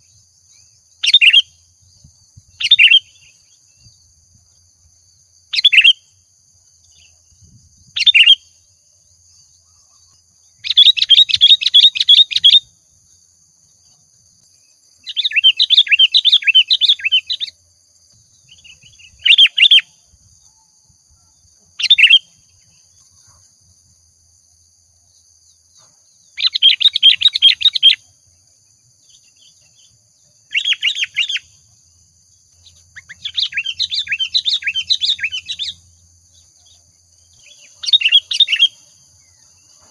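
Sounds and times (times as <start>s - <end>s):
bulbul singing: 0.0s - 4.1s, 5.5s - 6.2s, 6.8s - 8.6s, 9.6s - 12.7s, 14.6s - 17.6s, 18.3s - 20.6s, 21.8s - 22.9s, 26.2s - 28.2s, 29.0s - 31.7s, 32.5s - 39.9s.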